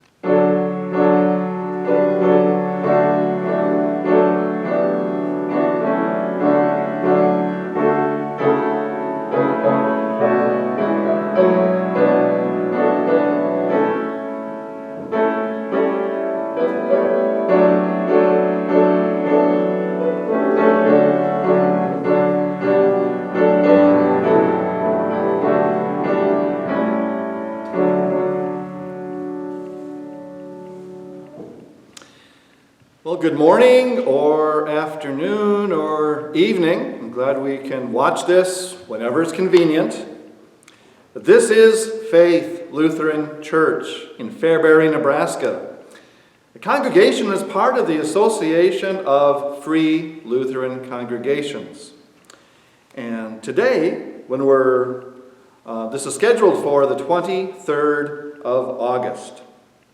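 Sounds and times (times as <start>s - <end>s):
slow solo piano chords: 0.1s - 32.0s.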